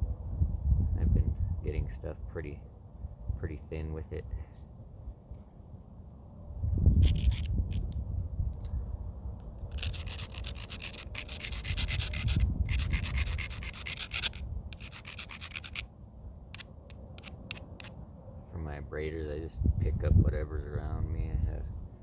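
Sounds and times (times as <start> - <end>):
stone scraping along stone edge: 6.9 - 8.0, 9.6 - 15.9, 16.5 - 18.0.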